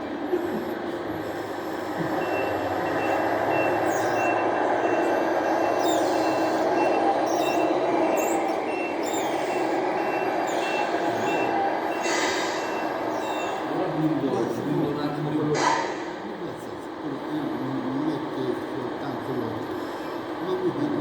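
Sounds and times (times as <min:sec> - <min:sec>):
rc truck engine: 0:00.0 - 0:15.2
reversing beeper: 0:02.0 - 0:14.8.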